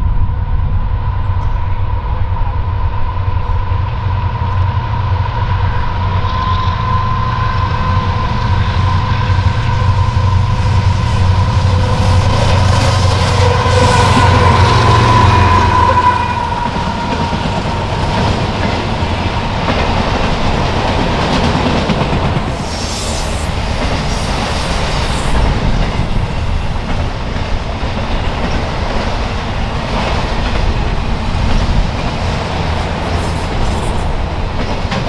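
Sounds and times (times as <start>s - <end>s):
freight train rumbling past: 0.0s - 35.0s
high wheel squeals: 5.5s - 19.2s.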